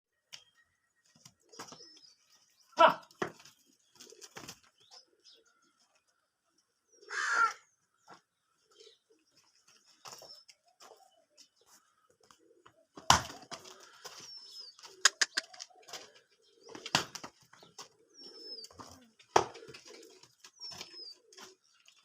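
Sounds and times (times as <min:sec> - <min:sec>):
birds cooing: 0:01.1 - 0:22.0.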